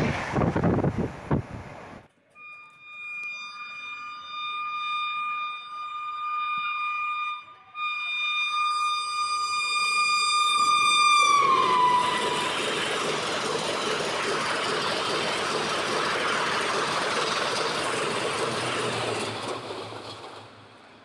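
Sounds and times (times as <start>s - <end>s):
rushing rumble of train coaches: 0.0s - 2.1s, 9.8s - 21.0s
train horn: 2.3s - 13.0s.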